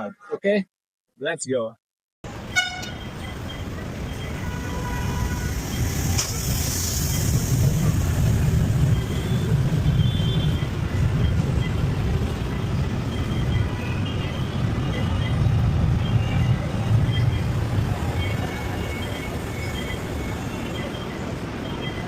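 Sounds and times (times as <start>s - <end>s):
passing vehicles rumble: 2.3s - 22.0s
brief hiss: 5.3s - 8.4s.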